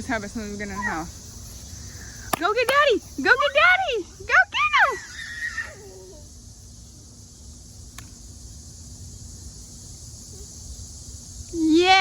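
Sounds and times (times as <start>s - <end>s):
steady high hiss: 0.0s - 12.0s
faint click: 7.9s - 8.2s.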